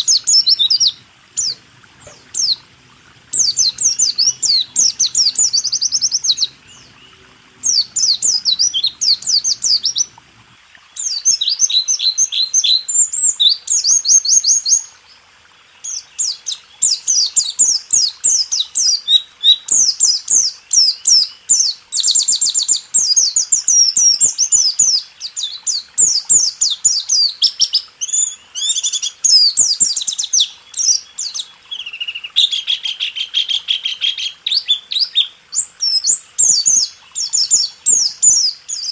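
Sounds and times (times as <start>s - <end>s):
bird singing rolling trill: 0.0s - 14.9s.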